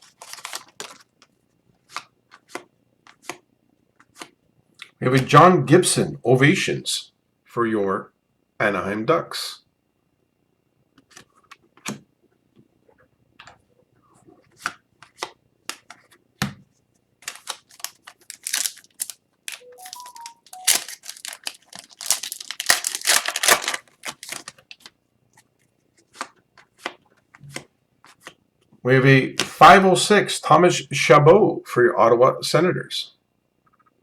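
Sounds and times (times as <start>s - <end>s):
cards clicking and snapping: 0.0s - 1.1s, 17.2s - 24.9s
card wrappers crinkling and tearing: 0.0s - 1.3s, 17.2s - 25.0s.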